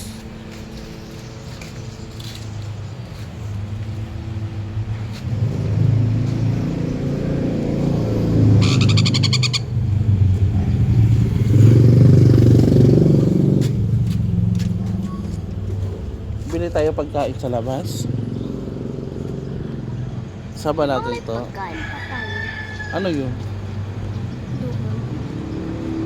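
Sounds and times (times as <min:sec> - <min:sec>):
vehicle engines rumbling: 0:00.0 - 0:26.0.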